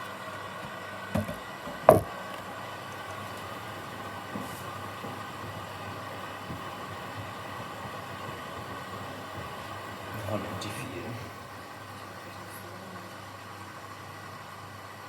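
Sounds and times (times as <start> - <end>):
washing machine hum: 0.0 - 15.0
drum and water whooshing: 3.5 - 10.7.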